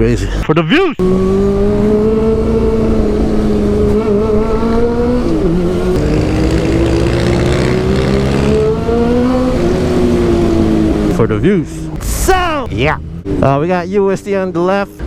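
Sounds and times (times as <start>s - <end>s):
motorcycle engine accelerating hard: 1.0s - 11.3s.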